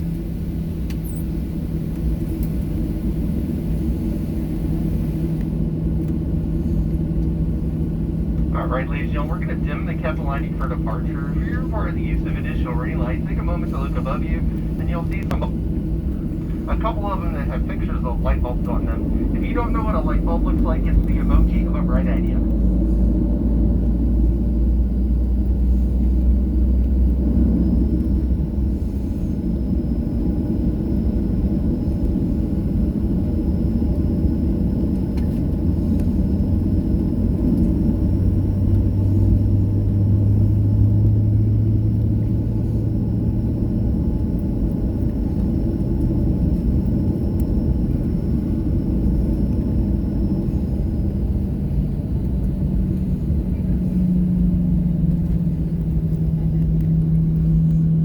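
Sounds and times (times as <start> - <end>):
jet engine cabin rumble: 0.0 - 58.0
faint high whine: 0.1 - 5.4, 8.6 - 22.5.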